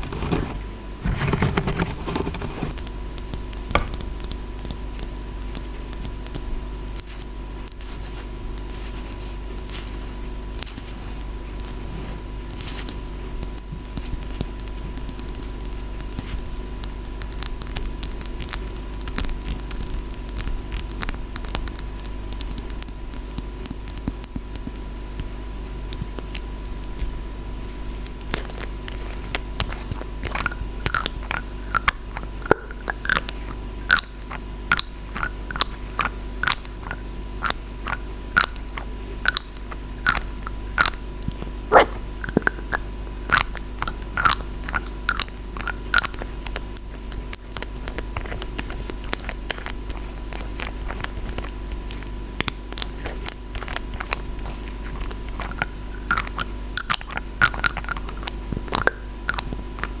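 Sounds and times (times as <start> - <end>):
fine scratching on object: 0.0 - 2.8
faint steady hum: 0.0 - 60.0.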